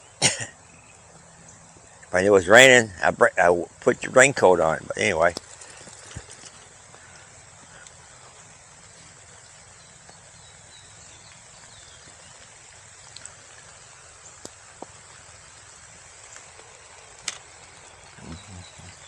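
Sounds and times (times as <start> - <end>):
light rain falling: 0.0 - 19.0
faint sharp ticks: 7.6 - 8.0, 12.4 - 13.8, 14.4 - 15.0.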